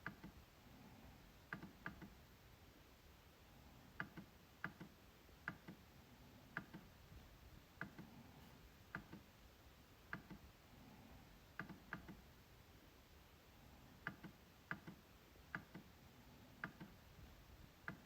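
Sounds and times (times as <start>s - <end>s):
trackpad clicks: 4.0s - 5.8s, 8.9s - 9.3s, 11.6s - 12.2s, 14.0s - 15.9s.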